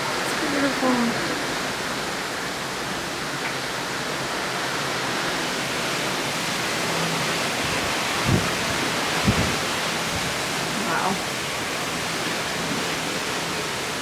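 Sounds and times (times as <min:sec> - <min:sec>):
sea: 0:00.0 - 0:14.0
wind: 0:00.0 - 0:14.0.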